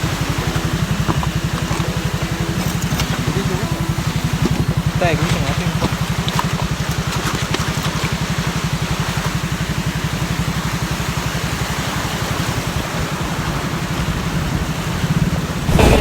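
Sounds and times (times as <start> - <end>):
road and wind noise: 0.0 - 16.0
vehicle engine running: 0.0 - 16.0.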